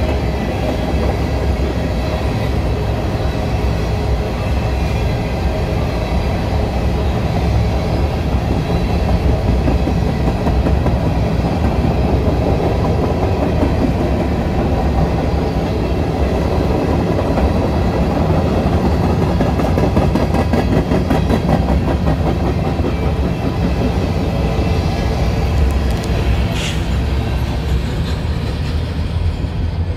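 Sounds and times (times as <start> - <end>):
freight cars rumbling past: 23.3 - 29.9.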